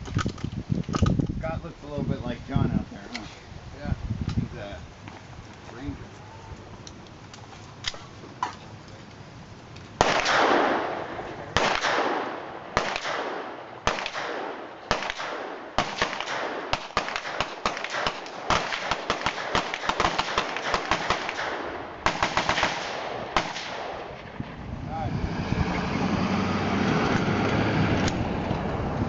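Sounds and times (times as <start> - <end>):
gunshots with ringing echo: 10.0 - 24.4
rapid gunfire: 11.6 - 24.0.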